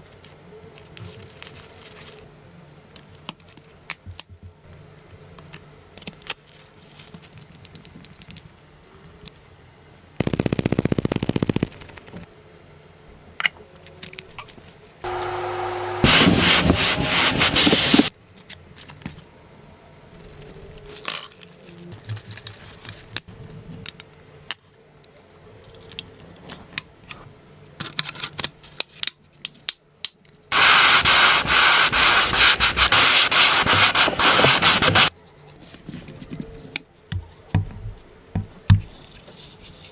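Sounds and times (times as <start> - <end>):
sanding: 15.1 - 18.1, 30.5 - 35.1.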